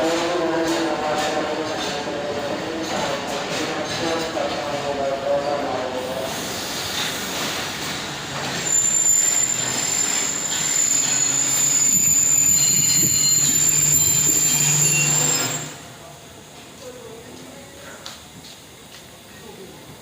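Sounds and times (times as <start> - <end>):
train rumbling on rails: 0.0 - 20.0
high-pitched wheel and brake squeal: 8.5 - 15.9.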